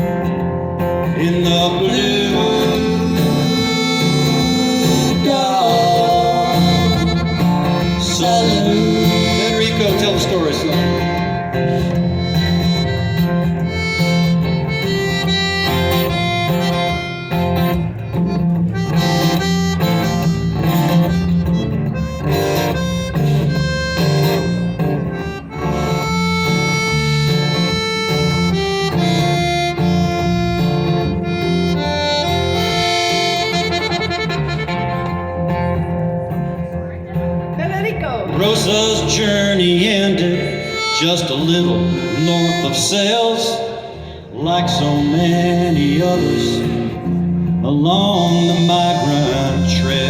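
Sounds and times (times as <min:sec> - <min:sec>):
lead instrument solo: 0:00.0 - 0:39.5
folk band playing: 0:00.0 - 0:50.0.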